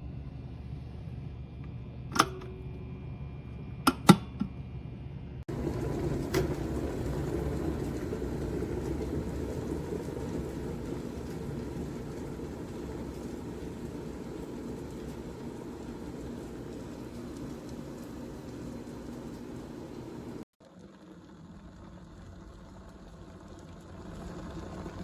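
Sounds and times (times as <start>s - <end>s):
kettle water bubbling: 5.5s - 20.5s.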